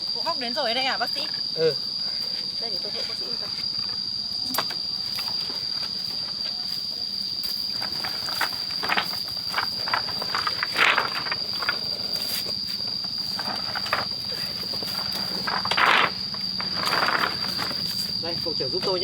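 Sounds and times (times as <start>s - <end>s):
insect droning: 0.0s - 19.0s
footsteps: 5.1s - 18.2s
rustling: 5.2s - 19.0s.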